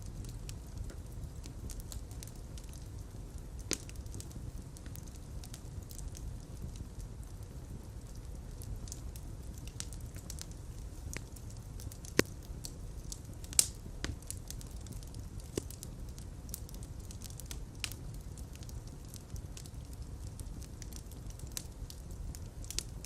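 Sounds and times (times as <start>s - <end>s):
low fire rumble: 0.0s - 23.0s
wood fire crackling and popping: 0.0s - 23.0s.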